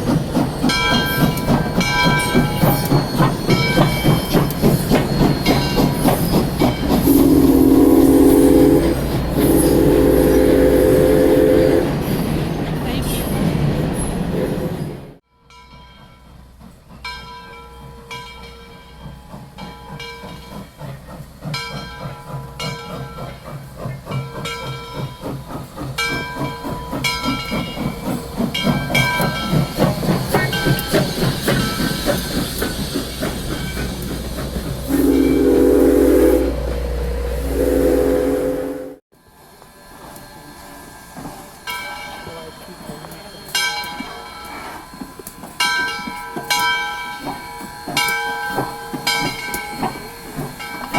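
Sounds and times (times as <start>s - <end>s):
steam locomotive exhaust chuffs: 0.0s - 15.2s, 16.0s - 50.9s
steam whistle blasts: 7.0s - 12.0s, 34.8s - 39.0s.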